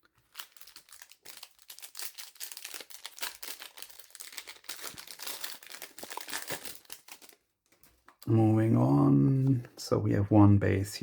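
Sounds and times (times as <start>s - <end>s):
trading cards rustling: 0.0s - 8.3s.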